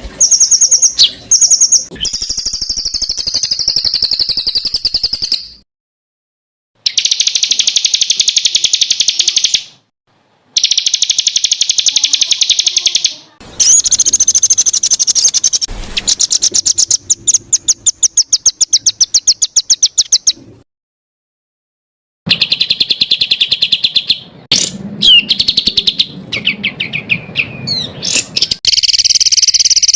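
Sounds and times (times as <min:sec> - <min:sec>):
songbird singing rapid high notes: 0:00.2 - 0:05.6, 0:06.8 - 0:09.8, 0:10.6 - 0:20.4, 0:22.3 - 0:29.9.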